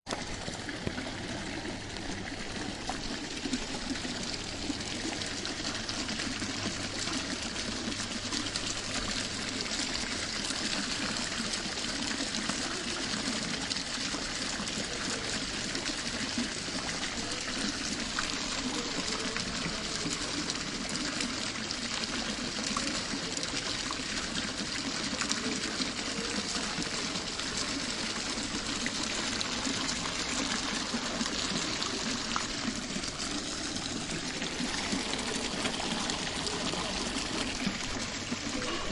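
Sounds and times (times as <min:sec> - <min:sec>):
running water trickling: 0:00.1 - 0:38.9.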